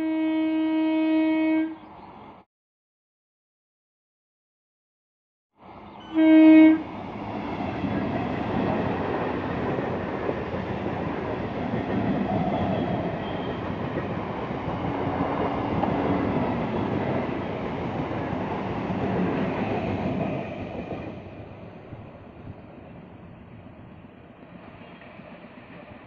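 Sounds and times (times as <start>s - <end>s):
train horn blast: 0.0s - 1.8s, 6.0s - 7.0s
train coaches running on track: 0.0s - 2.4s, 5.6s - 26.0s.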